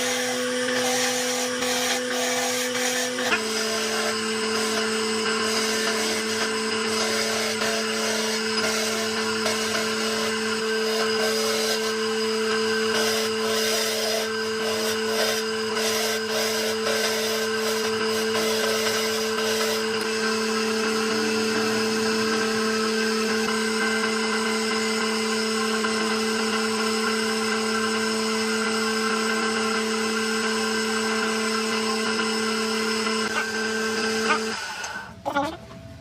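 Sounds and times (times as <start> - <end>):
power tool motor running: 0.0 - 36.0
wood cutting grinding noise: 0.0 - 36.0.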